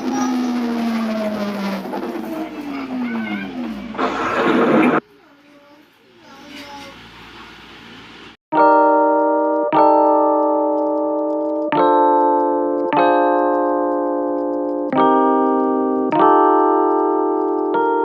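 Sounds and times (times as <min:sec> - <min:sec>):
slow piano chords: 0:08.6 - 0:18.0.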